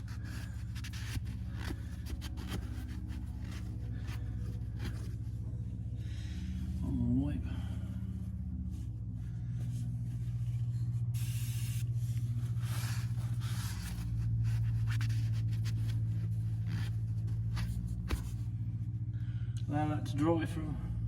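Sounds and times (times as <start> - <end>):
cloth rubbing on metal: 0.0 - 5.4, 9.6 - 18.4
low mechanical hum: 0.0 - 21.0.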